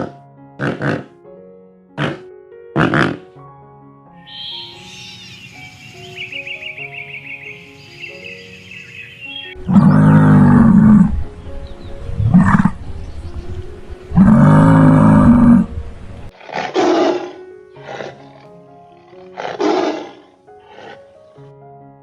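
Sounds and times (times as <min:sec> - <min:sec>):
large animal roaring: 0:00.0 - 0:01.1, 0:02.8 - 0:03.2, 0:09.6 - 0:11.2, 0:12.2 - 0:12.8, 0:14.1 - 0:15.8, 0:16.4 - 0:21.0
background music: 0:00.0 - 0:22.0.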